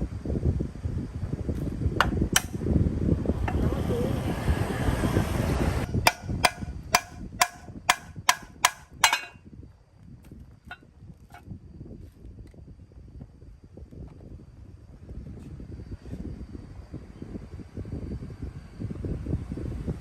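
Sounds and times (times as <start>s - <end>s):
low rumbling handling noise: 1.5s - 4.2s, 5.6s - 9.4s
hammer tapping on metal: 2.0s - 2.6s, 6.0s - 9.4s.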